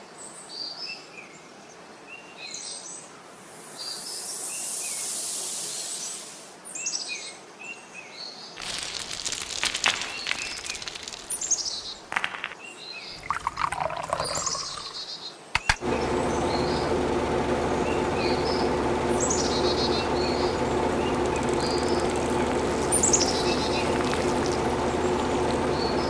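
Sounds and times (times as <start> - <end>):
small birds chirping: 8.6 - 13.2, 17.8 - 26.0
sharp clicks: 15.6 - 15.8
steady hum: 15.6 - 26.0.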